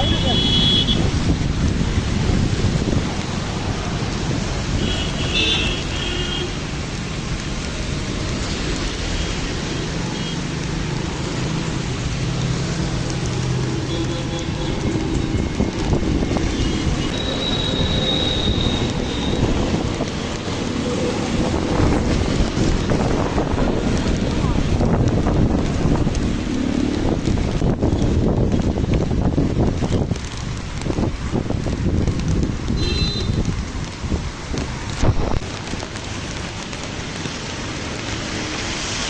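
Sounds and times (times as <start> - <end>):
wind buffeting microphone: 0.0 - 4.9, 14.4 - 38.1.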